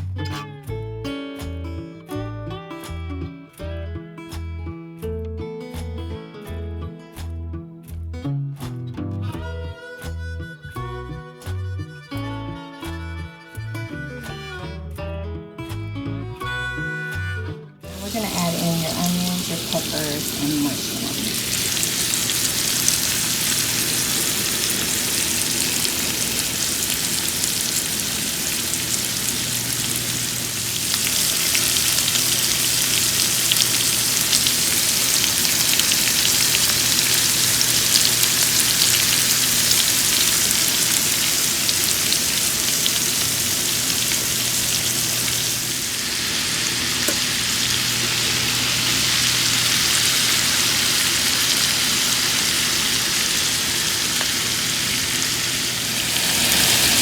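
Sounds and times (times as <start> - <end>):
food sizzling in a skillet: 17.9 - 57.0.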